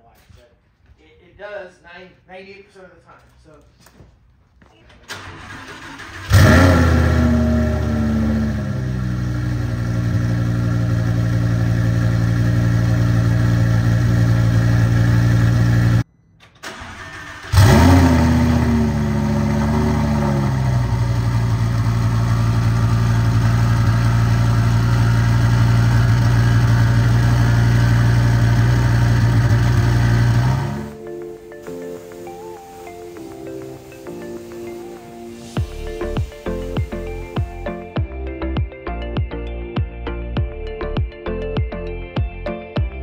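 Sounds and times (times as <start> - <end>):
engine starting and revving: 5.0 - 16.0, 16.6 - 31.0
car engine idling: 5.1 - 16.0, 16.6 - 31.0.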